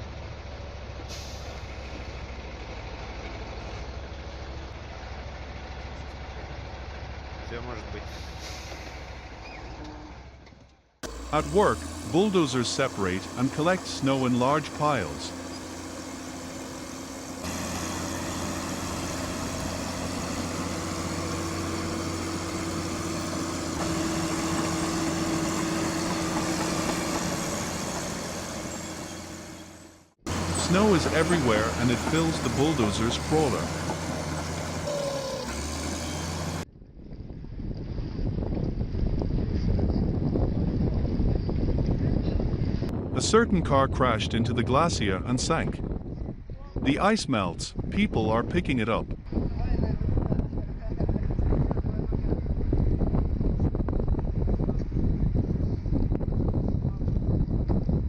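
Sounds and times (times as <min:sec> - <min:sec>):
diesel truck engine rumbling: 0:00.0 - 0:58.0
air brake hiss: 0:01.1 - 0:01.7, 0:08.1 - 0:09.1.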